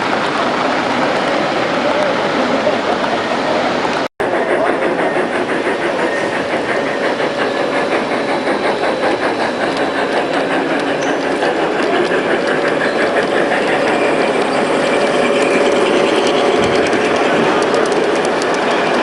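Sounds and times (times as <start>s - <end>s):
model train wheels clicking on rails: 0.0s - 19.0s.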